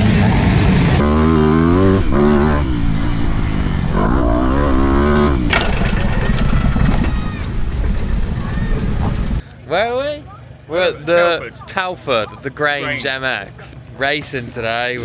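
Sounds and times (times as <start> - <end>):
motocross bike engines revving: 0.0 - 9.4.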